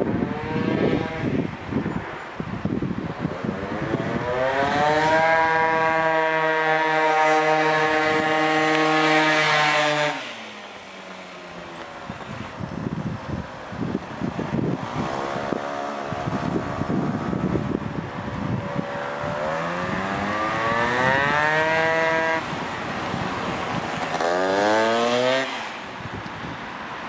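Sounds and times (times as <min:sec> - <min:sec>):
moped engine revving: 0:03.6 - 0:10.6, 0:18.5 - 0:22.6, 0:23.2 - 0:25.8.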